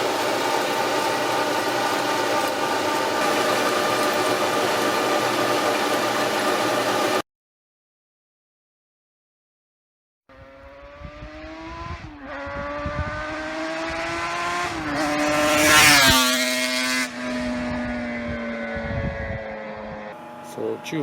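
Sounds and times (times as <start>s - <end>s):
vehicle driving past: 10.3s - 21.0s.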